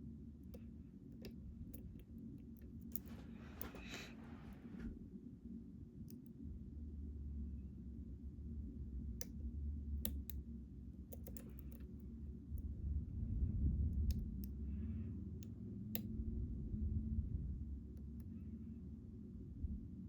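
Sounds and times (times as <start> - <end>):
steady low hum: 0.0 - 20.0
lock pick clicking in lock: 11.1 - 11.8.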